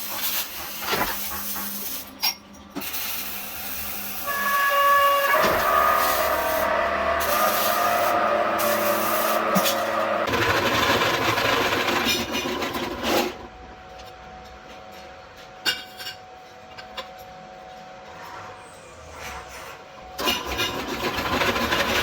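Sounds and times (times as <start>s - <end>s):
machine hum: 4.0s - 12.7s
power tool grinding metal: 4.1s - 11.2s.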